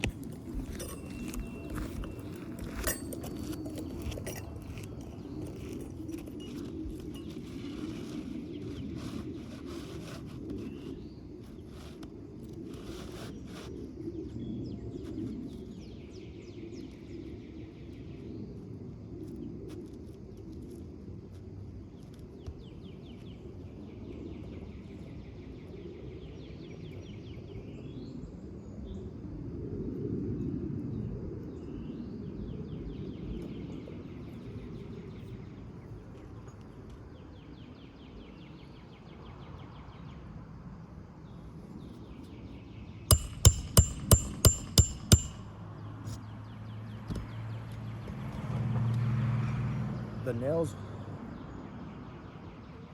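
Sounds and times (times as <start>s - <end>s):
hammer driving nails: 43.1s - 45.5s.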